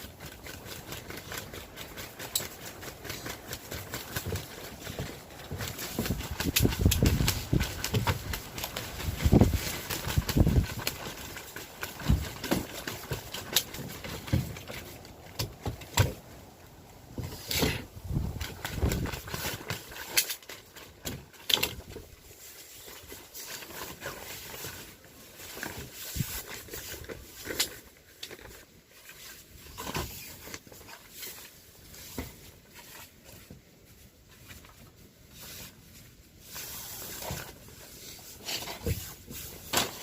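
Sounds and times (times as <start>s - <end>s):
clicks and knocks of handling: 0.0s - 16.3s
rustling: 0.0s - 40.0s.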